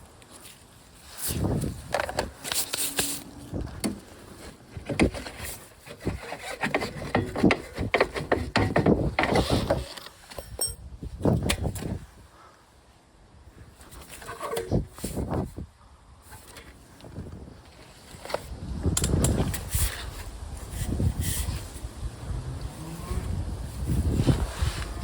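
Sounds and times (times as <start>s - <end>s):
tools clicking and scraping: 4.7s - 10.9s, 14.0s - 14.8s.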